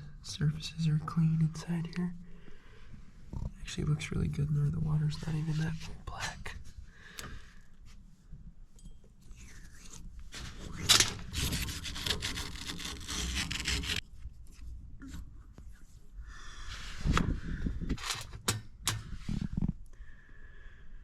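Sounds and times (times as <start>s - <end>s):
rubbing and scraping on valve parts: 9.3s - 14.0s.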